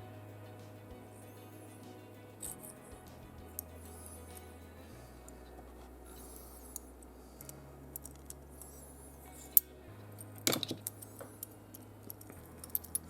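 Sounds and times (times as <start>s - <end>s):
metal parts clattering: 10.4s - 13.0s.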